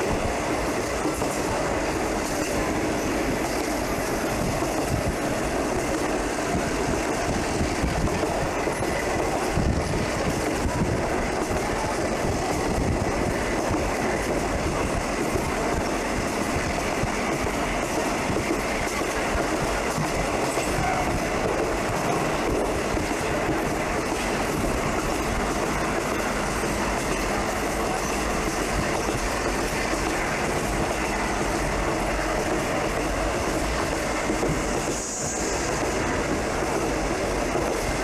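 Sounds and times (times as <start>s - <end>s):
wheels clacking over rail joints: 0.0s - 35.0s
train rumbling on track: 0.0s - 38.0s.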